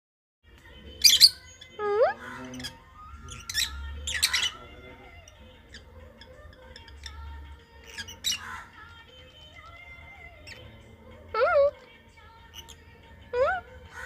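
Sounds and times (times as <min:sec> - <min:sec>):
lovebird squawking chirps: 0:01.0 - 0:08.8.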